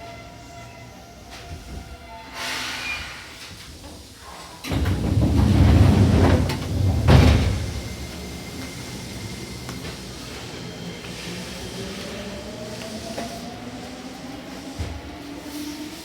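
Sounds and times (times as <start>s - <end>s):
train doors sliding and thudding: 1.2s - 16.0s
air hiss: 1.7s - 5.6s.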